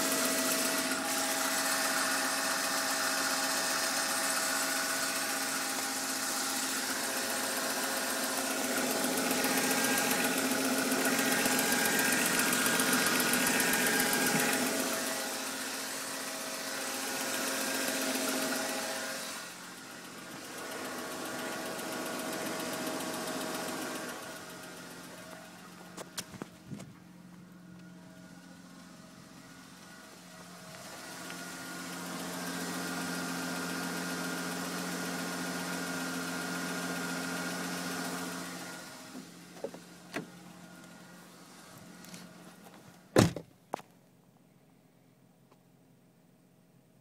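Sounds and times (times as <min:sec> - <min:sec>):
car engine running: 0:00.0 - 0:43.4
whining tones: 0:04.1 - 0:22.6.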